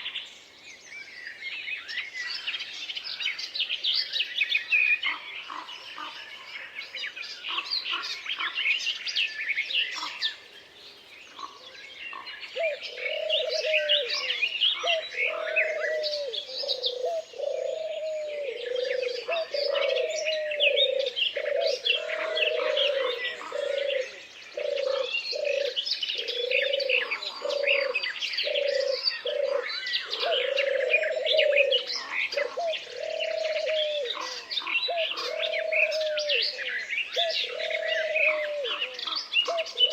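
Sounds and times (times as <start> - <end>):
small birds chirping and trilling: 0.0 - 39.9
low repeated bird call: 11.3 - 39.9.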